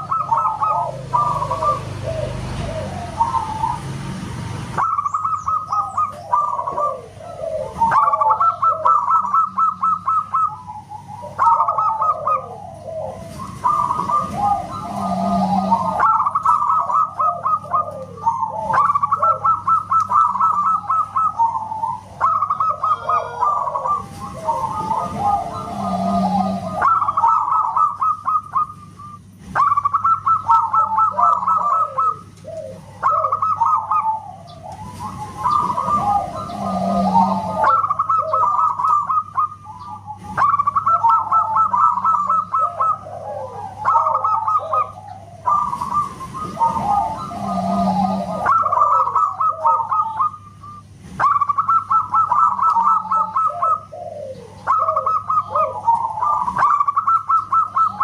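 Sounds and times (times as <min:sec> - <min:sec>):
dove cooing: 0:00.0 - 0:58.0
faint steady hum: 0:00.0 - 0:58.0.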